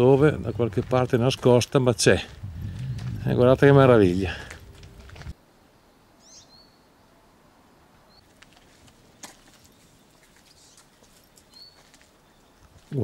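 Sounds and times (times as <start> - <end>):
faint bird chirps: 5.7 - 7.2.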